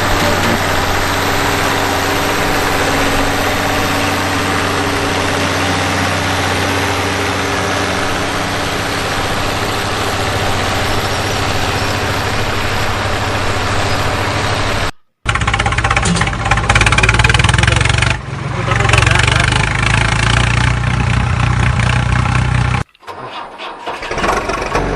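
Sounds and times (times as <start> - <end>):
tractor engine running: 0.0 - 24.9.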